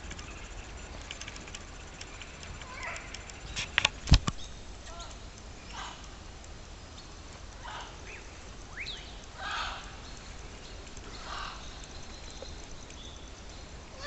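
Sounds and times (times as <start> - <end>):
steady low rumble: 0.0 - 14.0
harsh bird calls: 4.4 - 6.2, 6.8 - 14.0
rising bird whistle: 7.7 - 10.3.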